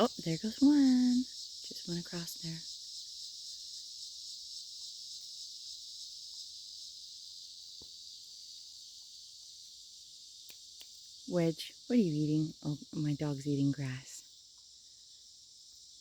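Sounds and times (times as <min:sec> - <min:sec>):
cicadas buzzing: 0:00.0 - 0:16.0.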